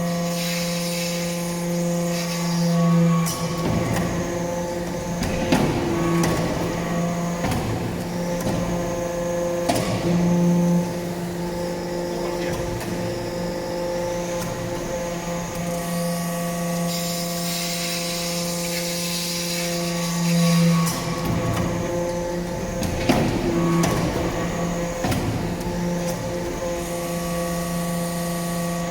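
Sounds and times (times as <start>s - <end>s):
hydraulic pump hum: 0.0s - 28.9s
hiss: 0.2s - 1.4s, 16.9s - 20.7s.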